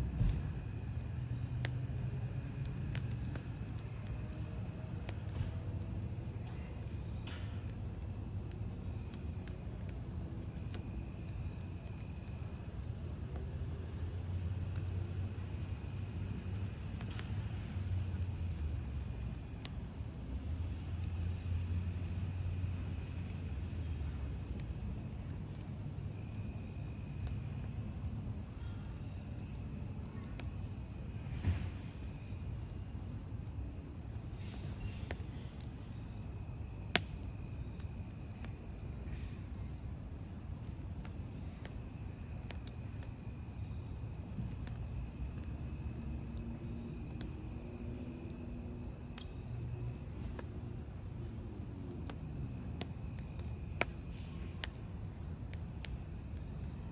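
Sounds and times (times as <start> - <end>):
burning logs crackling: 0.0 - 56.9
campfire rumble: 0.0 - 56.9
crickets chirping: 0.0 - 56.9.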